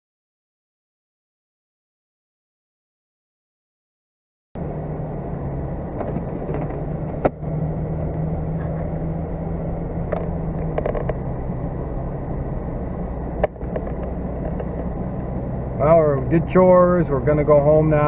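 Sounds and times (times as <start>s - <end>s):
vehicle engine and road hum: 4.6s - 18.0s
light rattles: 4.9s - 15.8s.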